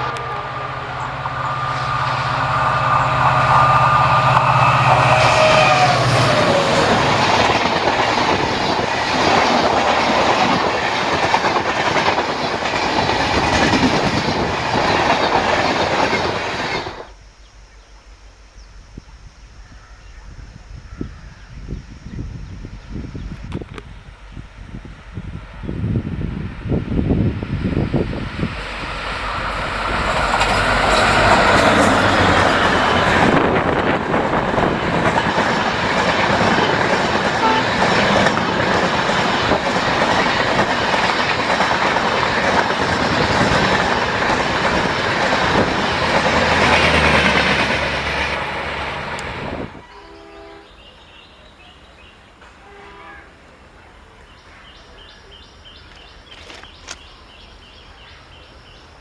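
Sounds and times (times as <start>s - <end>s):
train wheels clattering: 28.9s - 48.5s.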